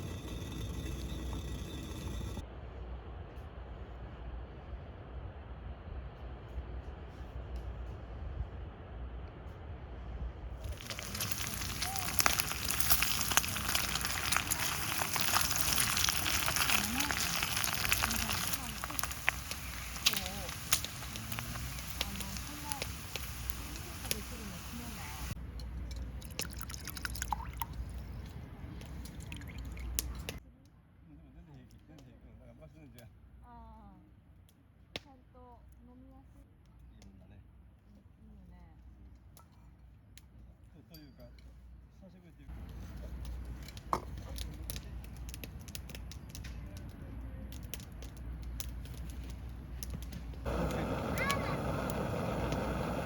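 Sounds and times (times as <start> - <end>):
campfire crackling: 0.0 - 2.4, 10.6 - 30.4, 42.5 - 53.0
steady low rumble: 0.0 - 30.4, 48.4 - 53.0
liquid dripping and bubbling: 10.6 - 30.4.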